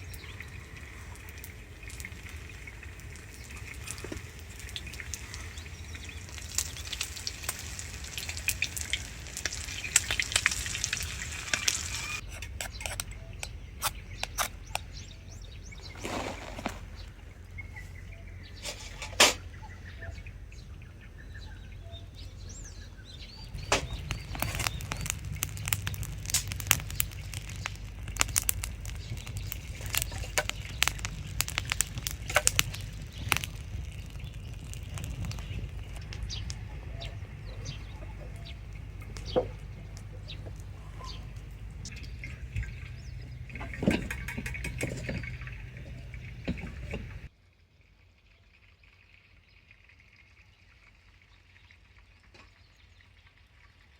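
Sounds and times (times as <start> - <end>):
campfire crackling and popping: 0.0 - 17.6, 23.4 - 47.3.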